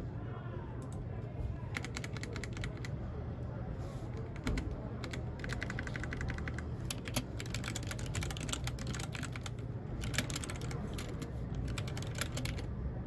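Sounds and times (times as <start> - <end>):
steady low hum: 0.0 - 13.0
mechanical keyboard typing: 1.7 - 2.9, 4.1 - 12.7.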